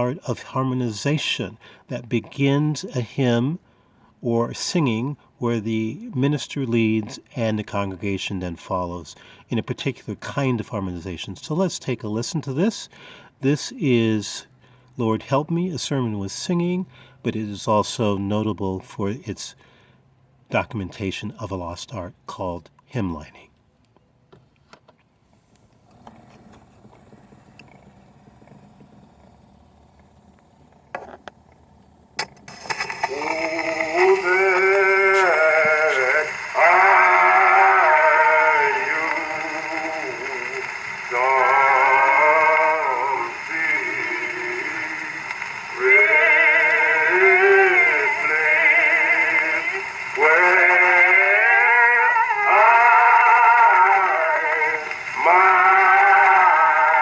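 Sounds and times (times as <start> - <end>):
record surface hiss and crackle: 0.0 - 19.6, 20.4 - 57.0
person singing a hymn: 32.7 - 57.0.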